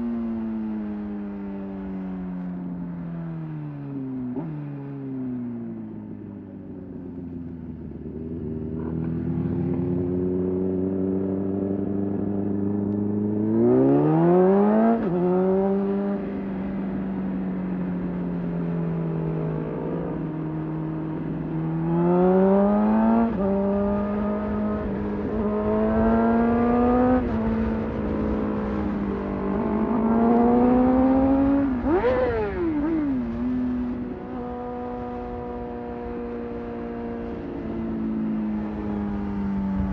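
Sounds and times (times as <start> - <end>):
motorcycle engine accelerating: 3.4 - 39.9.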